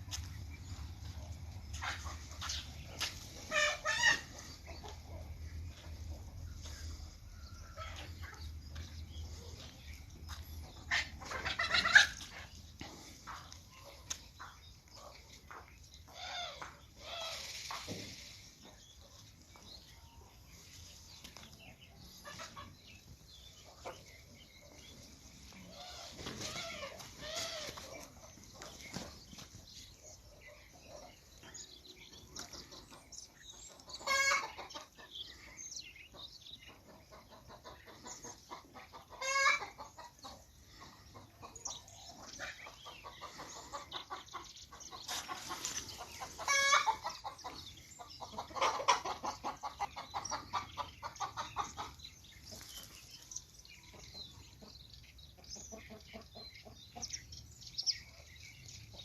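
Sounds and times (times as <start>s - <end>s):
chickens clucking: 0.0s - 59.0s
chicken squawking: 3.5s - 4.4s.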